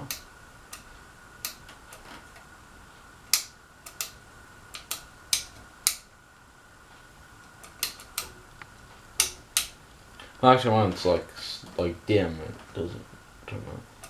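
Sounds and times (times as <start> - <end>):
ceiling fan switch clicks: 0.0 - 2.6, 3.2 - 6.5, 7.4 - 11.8
faint steady high whine: 0.0 - 14.0.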